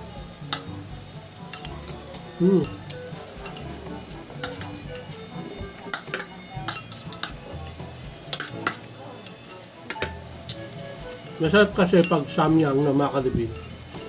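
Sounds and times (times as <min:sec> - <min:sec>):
background music: 0:00.0 - 0:14.0
cutlery clinking on a plate: 0:01.5 - 0:01.9, 0:02.6 - 0:03.8, 0:05.8 - 0:07.4, 0:08.3 - 0:10.2.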